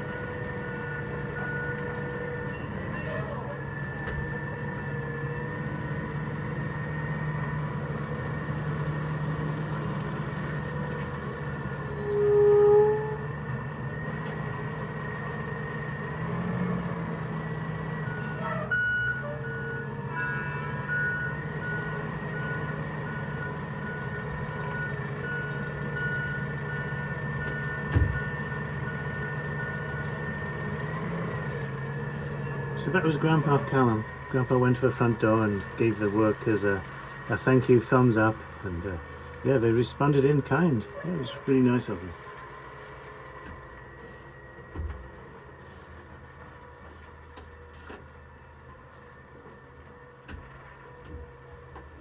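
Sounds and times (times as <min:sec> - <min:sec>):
reversing alarm beeping: 0:00.0 - 0:05.6, 0:18.0 - 0:36.4
truck engine running: 0:00.0 - 0:52.0.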